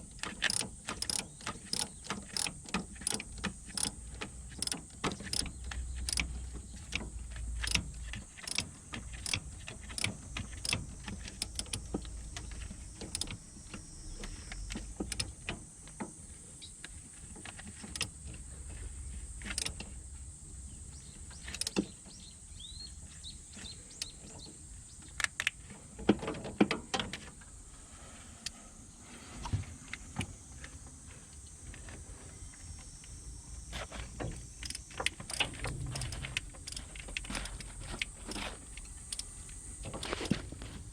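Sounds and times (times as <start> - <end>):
mechanical clicks and knocks: 0.0 - 15.6, 17.8 - 18.2, 19.4 - 19.9, 21.4 - 22.0, 34.2 - 40.4.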